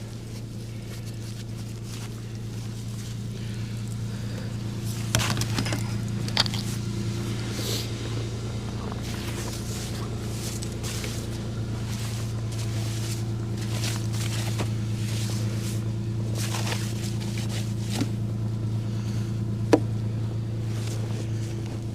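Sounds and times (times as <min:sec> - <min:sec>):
vehicle engine idling: 0:00.0 - 0:21.9.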